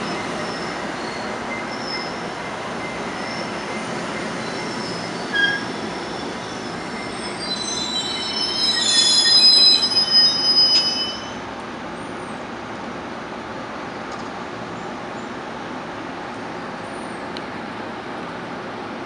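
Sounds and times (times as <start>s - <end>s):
brake squeals: 0.0s - 11.4s
train low rumble: 0.0s - 19.0s.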